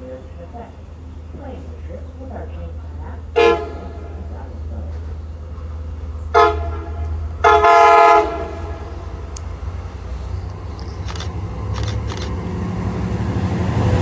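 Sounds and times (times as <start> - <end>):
train horn blasts: 3.4 - 4.2, 6.3 - 9.4.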